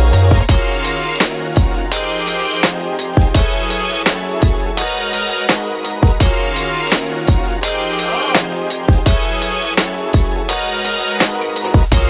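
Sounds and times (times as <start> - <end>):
deep sustained bass line: 0.0 - 0.6
drum beat: 0.0 - 12.0.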